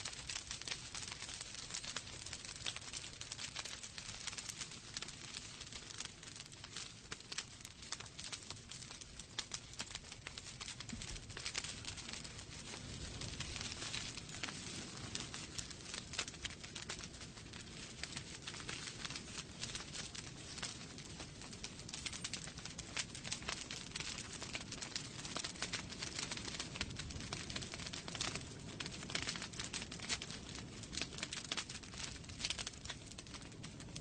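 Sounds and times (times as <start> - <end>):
logs crackling in fireplace: 0.0 - 34.0.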